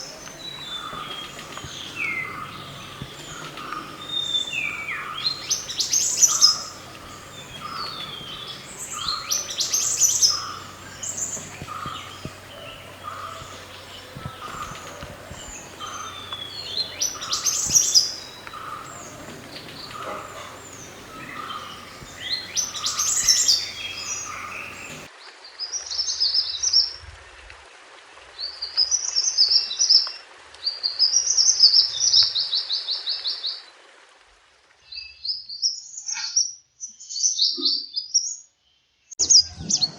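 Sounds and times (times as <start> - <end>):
bird singing chirpy phrases: 0.0 - 25.1
low background hum: 0.3 - 25.1.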